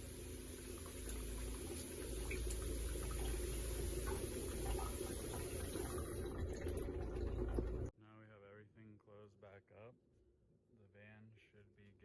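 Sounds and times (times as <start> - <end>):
shower water running: 0.0 - 7.9.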